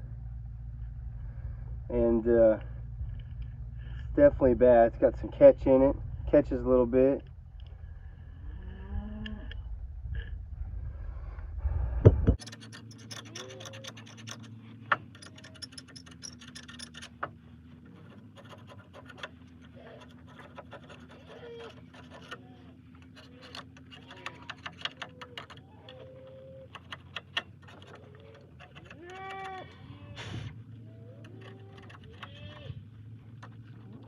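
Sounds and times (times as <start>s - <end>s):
low steady hum: 0.0s - 34.0s
clicks and scraping: 12.1s - 34.0s
metal tools being handled: 12.4s - 32.6s.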